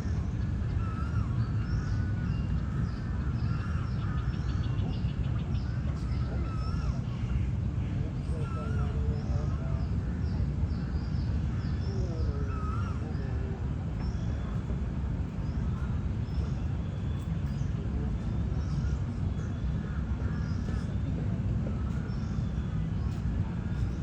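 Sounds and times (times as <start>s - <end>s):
birds chirping and warbling: 0.0s - 24.0s
steady low rumble: 0.0s - 24.0s.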